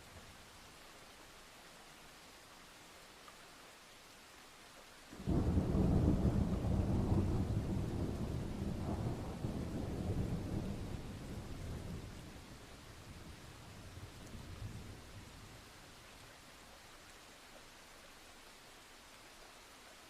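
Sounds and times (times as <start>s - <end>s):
steady rain: 0.0s - 20.0s
thunder clap: 5.2s - 12.0s.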